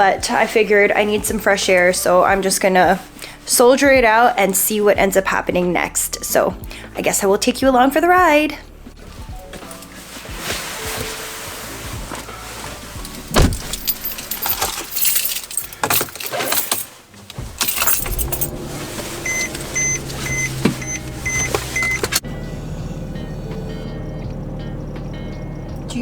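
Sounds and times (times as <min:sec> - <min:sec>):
car engine humming: 0:11.0 - 0:26.0
car keys jangling: 0:13.0 - 0:22.2
dashboard warning chime beeping: 0:18.1 - 0:22.5.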